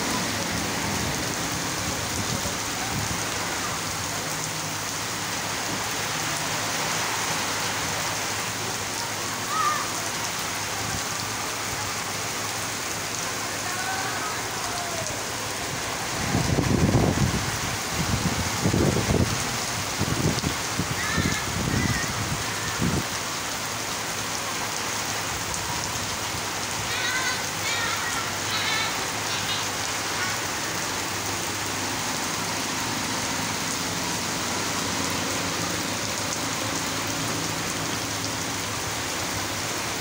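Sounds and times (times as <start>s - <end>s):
heavy rain on street: 0.0s - 40.0s.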